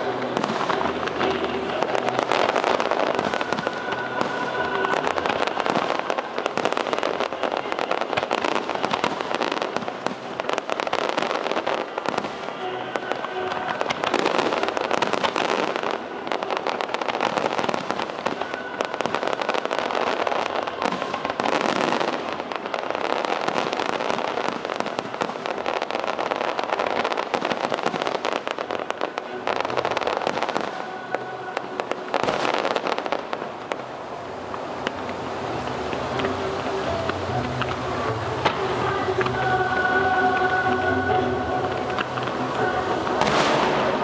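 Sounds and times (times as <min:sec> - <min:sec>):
fireworks crackling and popping: 0:00.0 - 0:44.0.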